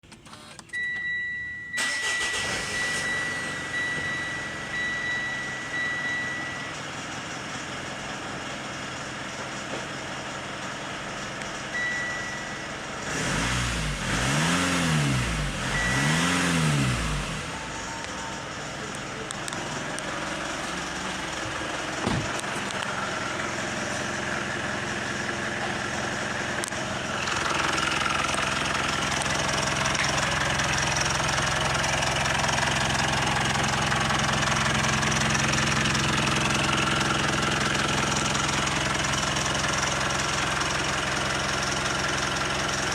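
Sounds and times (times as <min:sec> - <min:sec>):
car engine running: 0:00.2 - 0:42.9
low thump: 0:22.0 - 0:22.4.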